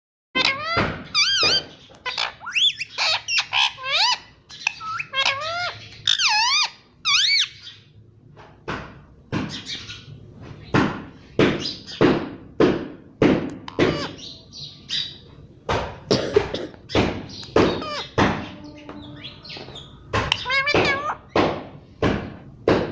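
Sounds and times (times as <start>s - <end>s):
parrot squawking: 0.4s - 7.8s, 13.7s - 15.2s, 16.9s - 21.4s.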